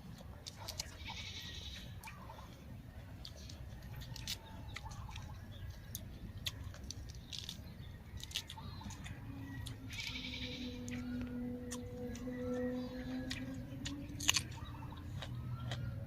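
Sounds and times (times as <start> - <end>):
birds chirping: 0.0 - 16.0
steady low rumble: 0.0 - 16.0
sharp clicks and crackles: 3.2 - 10.2.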